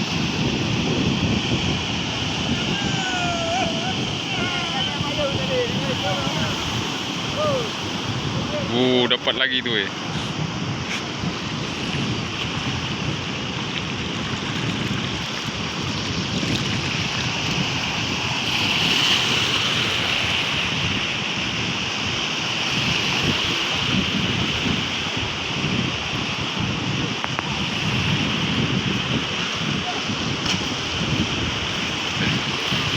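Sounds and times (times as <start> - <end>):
heavy surf breaking: 0.0 - 32.9
wind buffeting microphone: 0.0 - 32.9.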